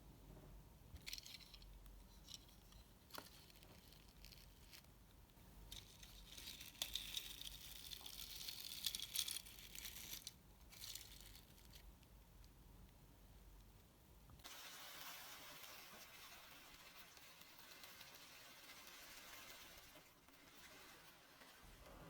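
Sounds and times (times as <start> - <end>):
crackly rustling: 1.0 - 13.0.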